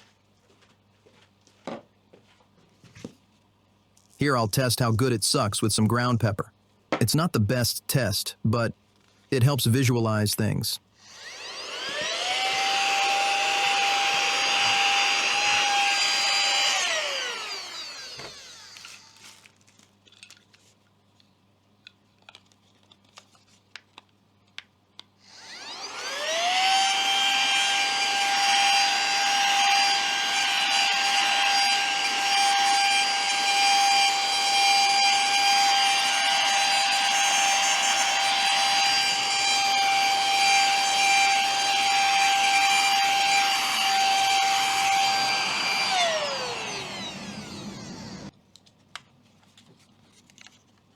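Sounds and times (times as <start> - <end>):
handheld vacuum motor whining: 11.0 - 19.4, 25.3 - 48.3.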